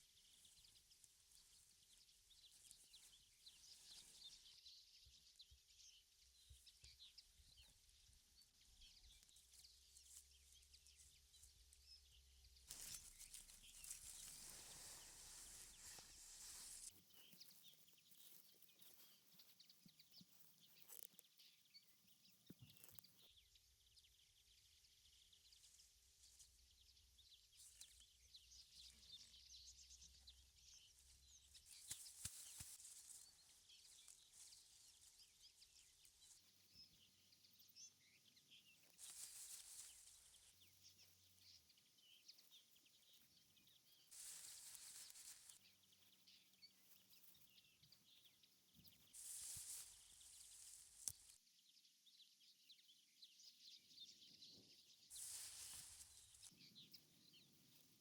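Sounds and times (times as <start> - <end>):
soft rustling: 0.0 - 5.8, 8.6 - 23.2, 27.4 - 41.8, 43.6 - 51.4, 55.1 - 58.0.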